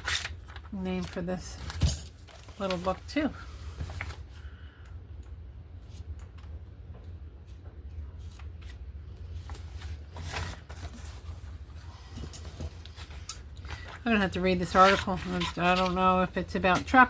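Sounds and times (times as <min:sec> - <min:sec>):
paper rustling: 0:00.0 - 0:04.5, 0:07.9 - 0:17.0
low steady hum: 0:00.0 - 0:17.0.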